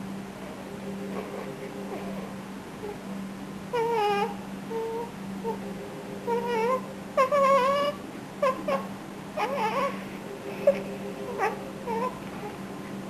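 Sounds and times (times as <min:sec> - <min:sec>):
steady low hum: 0:00.0 - 0:13.0
newborn whimpering cries: 0:03.7 - 0:05.6, 0:06.2 - 0:12.6.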